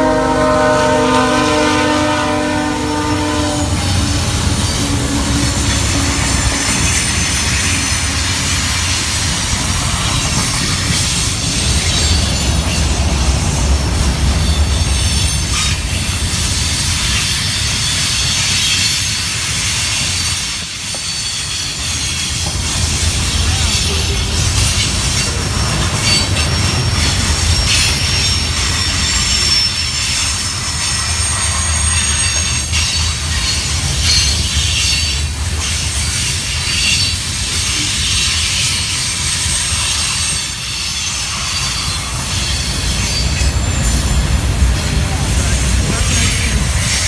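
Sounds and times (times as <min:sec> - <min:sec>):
train horn chord: 0:00.0 - 0:06.7
high wheel squeal: 0:01.5 - 0:47.0
freight cars rumbling and clattering: 0:03.7 - 0:47.0.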